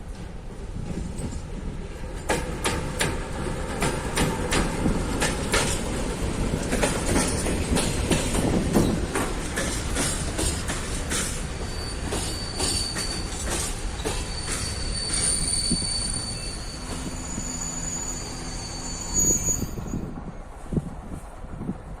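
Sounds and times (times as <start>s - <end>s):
wheels clacking over rail joints: 0.0s - 17.4s
freight train rumbling past: 0.0s - 22.0s.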